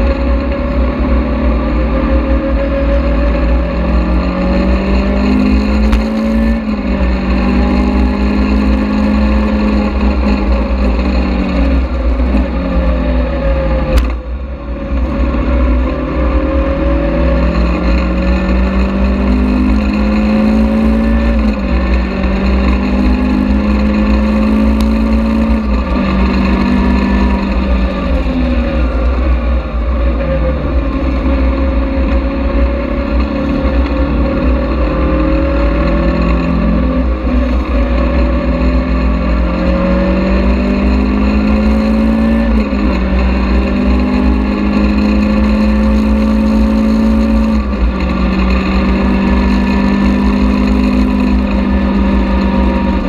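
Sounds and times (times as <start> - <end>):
sports car engine revving: 0.0 - 53.0.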